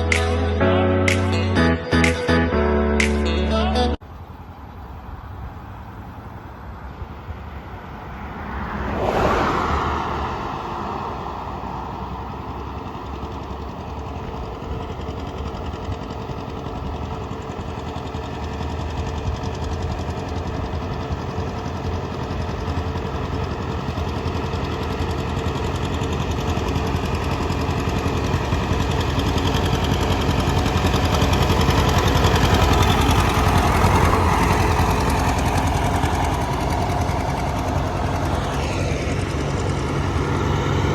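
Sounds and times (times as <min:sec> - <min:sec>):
tractor engine running: 0:11.3 - 0:40.9.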